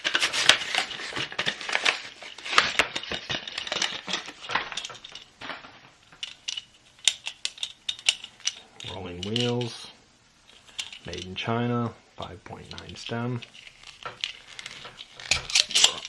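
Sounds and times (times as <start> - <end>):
plastic packaging crackling: 0.0 - 5.3, 12.6 - 16.0.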